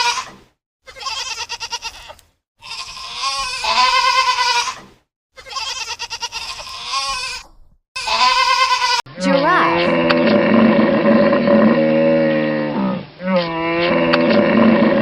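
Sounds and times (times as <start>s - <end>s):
goat bleating: 0.9s - 4.8s, 5.4s - 10.0s.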